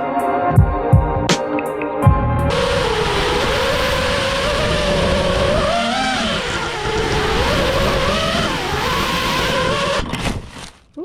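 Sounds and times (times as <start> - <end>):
rush of prop wash: 2.5 - 10.6
quadcopter motors whining: 2.5 - 10.8.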